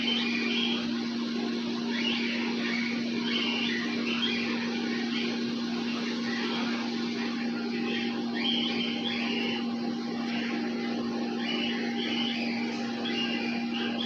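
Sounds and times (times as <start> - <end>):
steady low hum: 0.0 - 14.0
cockatiels chirping: 1.9 - 5.3, 7.8 - 9.6, 10.2 - 14.0.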